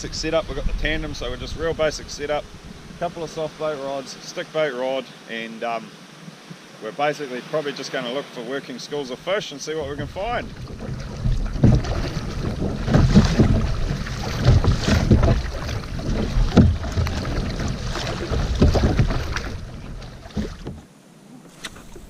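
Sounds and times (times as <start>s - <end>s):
wind on microphone: 0.0s - 3.3s, 9.8s - 20.8s
paddle strokes splashing: 0.2s - 22.0s.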